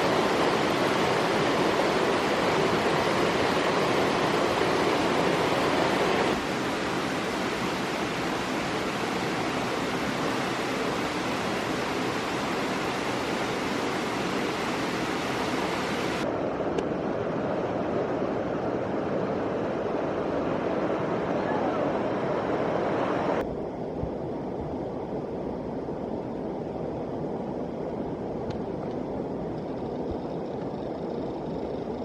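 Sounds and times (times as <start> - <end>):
stream water rushing: 0.0 - 23.4.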